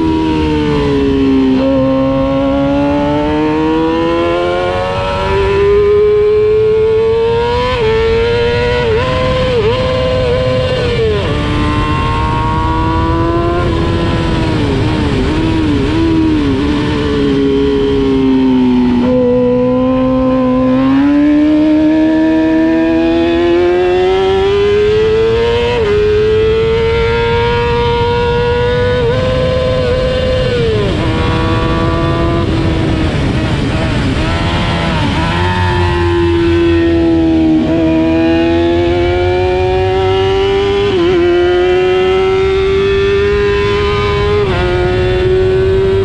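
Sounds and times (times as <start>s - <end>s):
race motorcycle engine revving: 0.0s - 46.0s
wind rushing over microphone: 0.0s - 46.0s.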